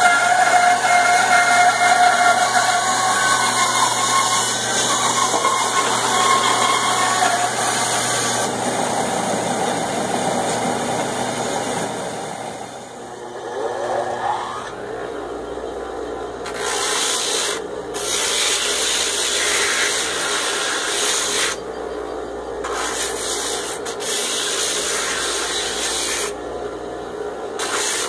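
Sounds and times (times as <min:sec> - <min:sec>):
band saw cutting wood: 0:00.0 - 0:11.9, 0:12.8 - 0:15.0, 0:16.4 - 0:21.6, 0:22.6 - 0:26.4, 0:27.6 - 0:28.0
motor whine: 0:02.4 - 0:16.6.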